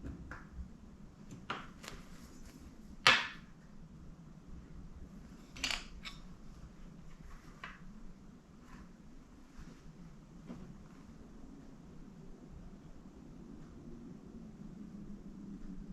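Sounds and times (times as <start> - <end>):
hard objects knocking and clicking: 3.1 - 3.4.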